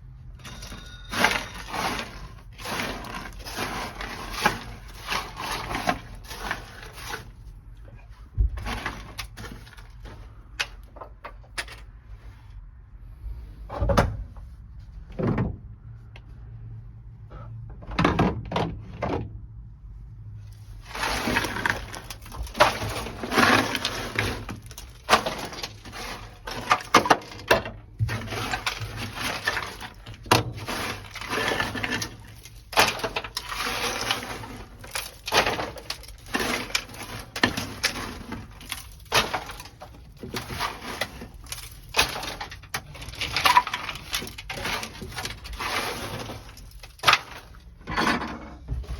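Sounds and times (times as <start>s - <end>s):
brittle mat cracking and scraping: 0.5s - 11.9s, 20.5s - 48.0s.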